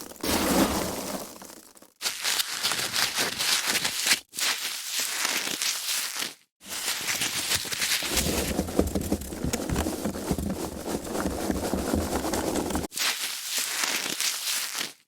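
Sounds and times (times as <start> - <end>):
foam packaging crackling: 5.0 - 15.0
deeper rubbing sound: 8.0 - 12.9.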